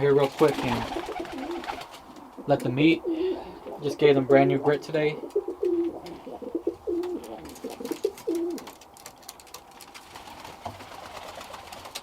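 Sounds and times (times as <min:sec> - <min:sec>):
pigeons cooing: 0:00.6 - 0:04.0, 0:05.1 - 0:08.7.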